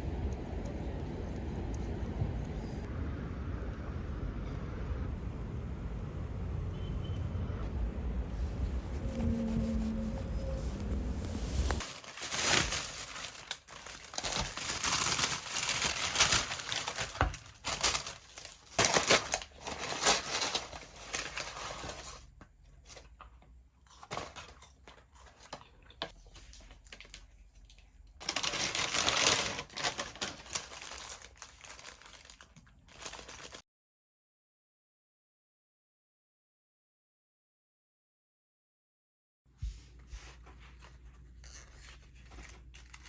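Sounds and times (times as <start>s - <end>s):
crinkling and rustling: 8.3s - 33.6s, 39.7s - 43.0s.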